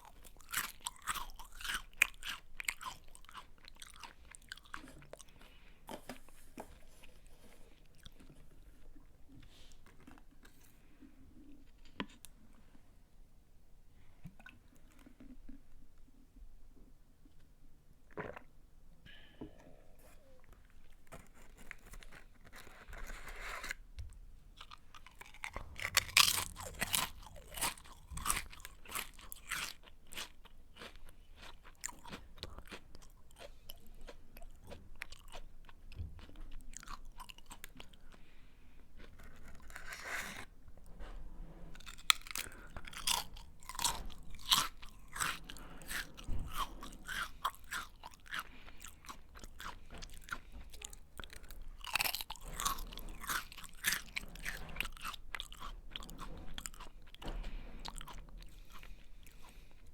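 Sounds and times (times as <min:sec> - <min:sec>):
person crunching a snack: 0:00.0 - 0:08.9, 0:24.6 - 0:38.2, 0:41.8 - 0:59.6
soft chewing: 0:00.0 - 0:12.8, 0:14.0 - 0:18.5, 0:19.8 - 0:23.8, 0:24.5 - 0:59.9.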